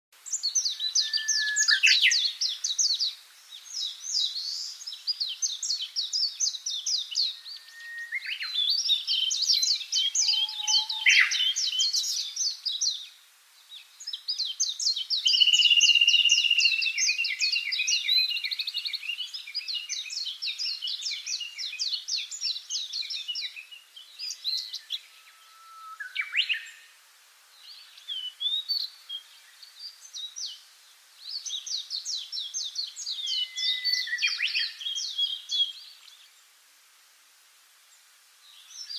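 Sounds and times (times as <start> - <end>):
songbird trilling: 0.4 - 3.0, 5.5 - 12.9, 14.6 - 18.6, 32.5 - 35.6.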